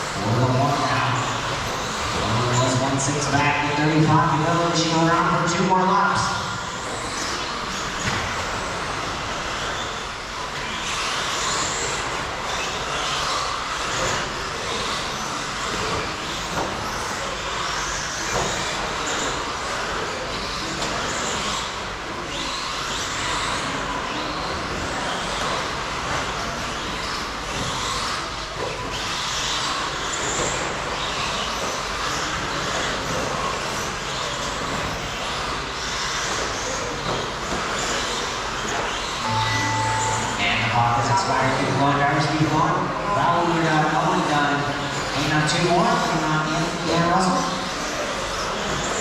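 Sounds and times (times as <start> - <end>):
rc truck motors whining: 6.6 - 39.2.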